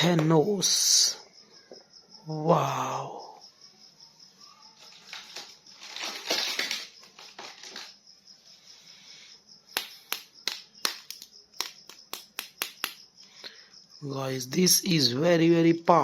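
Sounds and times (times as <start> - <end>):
plastic packaging crinkling: 4.8 - 8.0.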